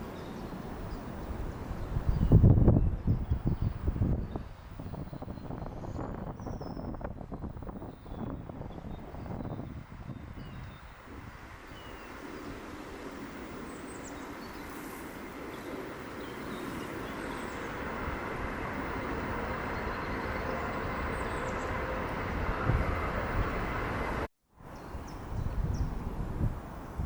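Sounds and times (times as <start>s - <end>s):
faint steady tones: 11.6s - 24.3s
birds chirping: 11.7s - 24.2s
vehicle rumble approaching: 15.2s - 24.3s.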